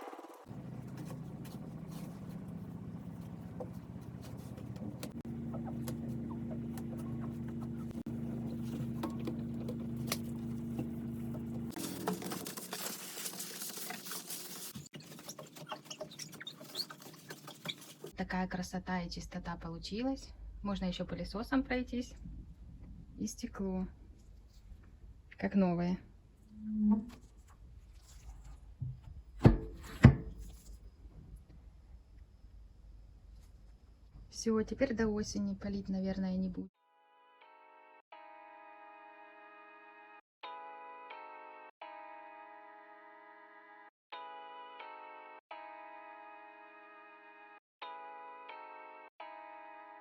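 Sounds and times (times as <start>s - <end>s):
rustling and light clicks of cleaning: 0.5s - 18.2s.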